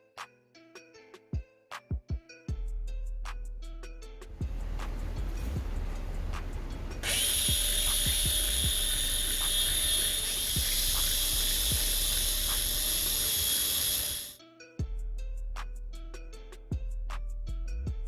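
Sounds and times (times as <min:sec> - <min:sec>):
background music with steady beat: 0:00.0 - 0:18.0
power tool high-pitched whine: 0:04.4 - 0:14.4.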